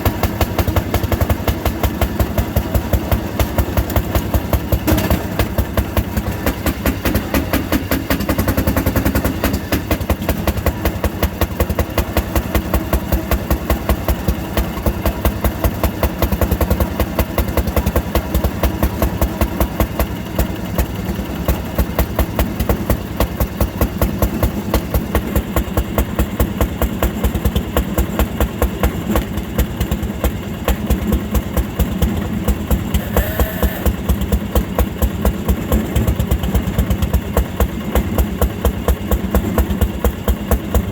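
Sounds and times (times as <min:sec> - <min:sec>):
two-stroke engine running: 0:00.0 - 0:40.9
brief high tone: 0:33.0 - 0:33.9.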